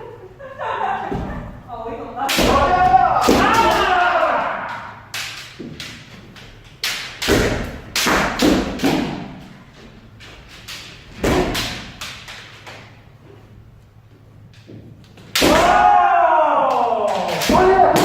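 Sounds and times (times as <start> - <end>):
bamboo swords striking armour: 2.3 - 6.1, 6.8 - 9.5, 10.7 - 12.4, 15.3 - 16.0, 17.0 - 18.0
person shouting: 2.4 - 5.1, 15.4 - 18.0.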